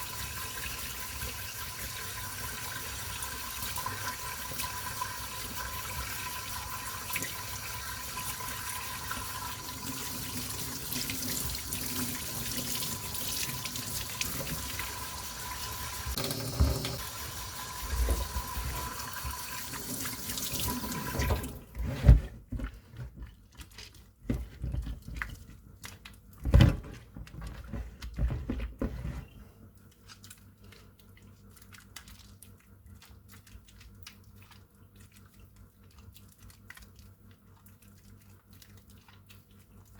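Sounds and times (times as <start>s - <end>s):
tap water running into a sink: 0.0s - 21.7s
handling knocks and thumps: 16.0s - 17.0s, 21.3s - 25.6s, 26.4s - 29.4s.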